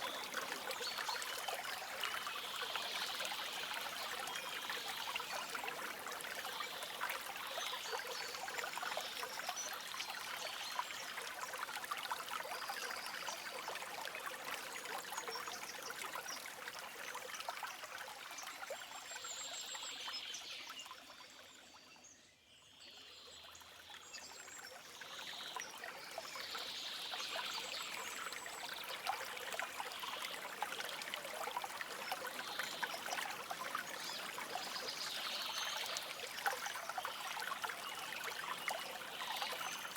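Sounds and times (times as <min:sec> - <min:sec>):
stream babbling over stones: 0:25.9 - 0:39.9.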